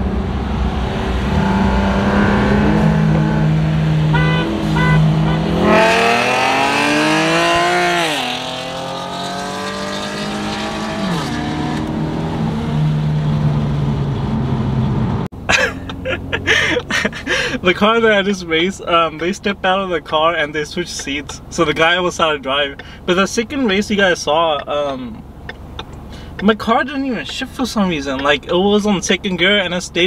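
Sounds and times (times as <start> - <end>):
car engine accelerating hard: 0.0 - 18.6.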